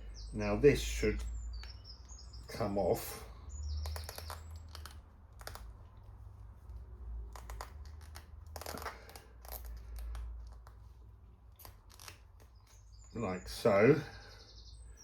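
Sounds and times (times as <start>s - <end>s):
faint clicks and scrapes of a part: 3.8s - 13.1s.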